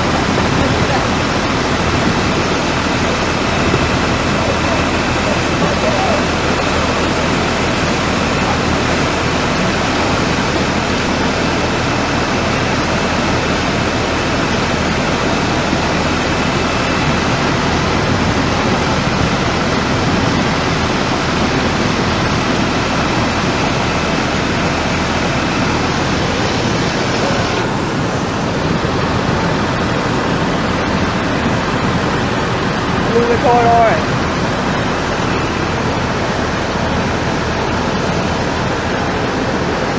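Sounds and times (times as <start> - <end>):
rushing floodwater roar: 0.0 - 39.9.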